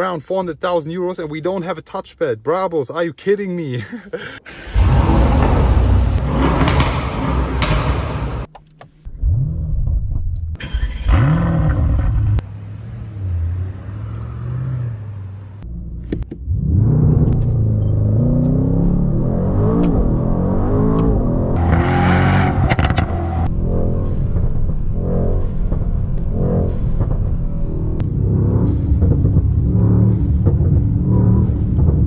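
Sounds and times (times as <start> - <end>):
car engine starting and revving: 4.4 - 8.5, 9.1 - 32.0.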